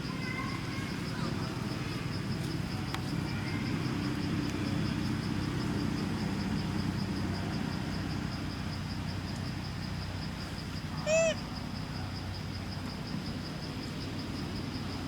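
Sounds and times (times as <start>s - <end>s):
insect trilling: 10.8s - 12.5s.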